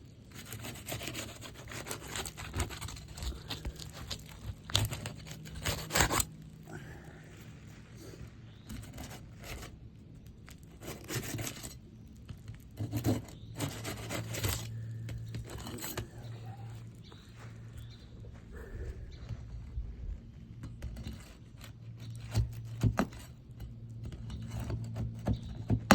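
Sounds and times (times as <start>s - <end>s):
roof shingles scraping and tearing: 0.1s - 17.1s.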